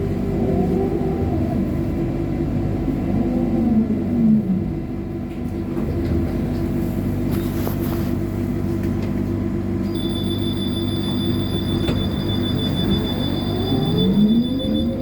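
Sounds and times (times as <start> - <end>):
electrical equipment humming: 8.2 - 15.0
high-pitched whistle: 9.9 - 15.0.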